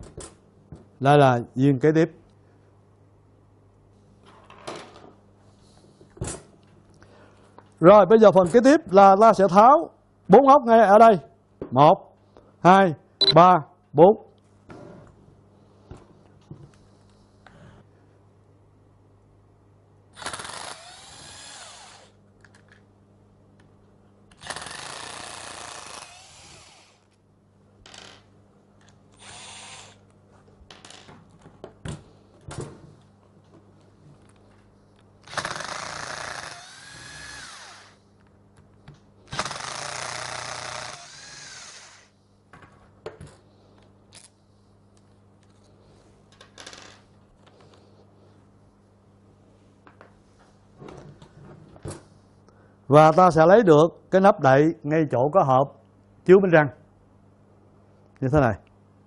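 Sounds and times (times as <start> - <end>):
power screwdriver whining: 20.2 - 22.1, 24.4 - 27.1, 29.2 - 30.0, 35.2 - 38.0, 39.3 - 42.1.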